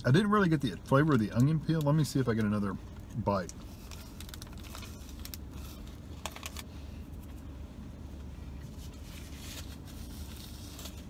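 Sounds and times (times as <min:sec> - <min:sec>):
steady low hum: 0:00.0 - 0:11.0
paper wrapper rustling: 0:03.6 - 0:06.7, 0:08.7 - 0:11.0.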